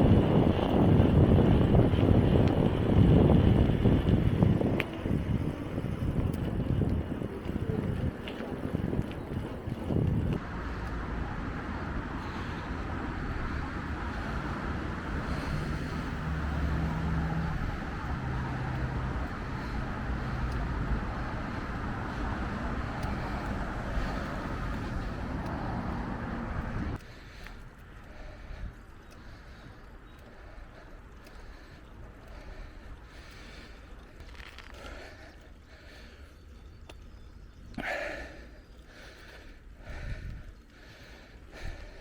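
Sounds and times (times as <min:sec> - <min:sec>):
wind on microphone: 0:00.0 - 0:27.0
bicycle tyres rolling: 0:00.0 - 0:42.0
low engine-like hum: 0:00.0 - 0:42.0.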